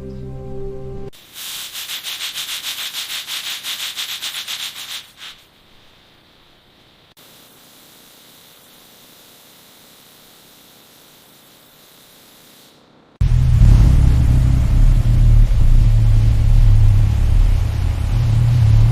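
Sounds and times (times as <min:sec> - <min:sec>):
music: 0:00.0 - 0:01.1
faint steady hiss: 0:01.1 - 0:18.9
sanding strokes: 0:01.2 - 0:06.1.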